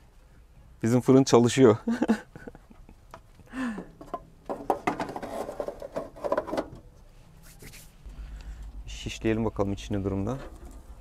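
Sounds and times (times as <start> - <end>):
small knocks and clatters: 3.1 - 6.9.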